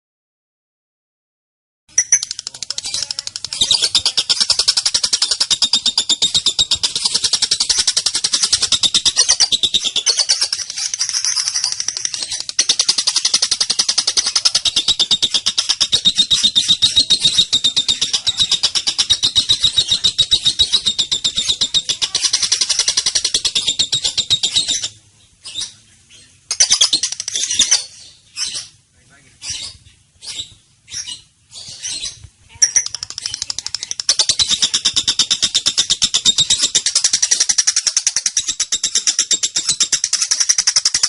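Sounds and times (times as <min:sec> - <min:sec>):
lovebird shrill chatter: 0:02.0 - 0:25.8, 0:26.5 - 0:28.8, 0:29.4 - 0:41.0.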